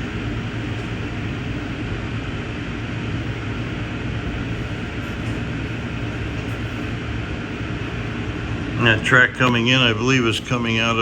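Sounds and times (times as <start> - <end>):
train car rolling on track: 3.9 - 11.0.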